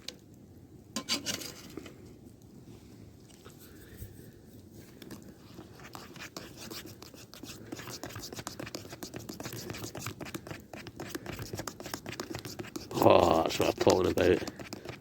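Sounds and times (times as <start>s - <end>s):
spoon stirring in metal mug: 5.4s - 15.0s.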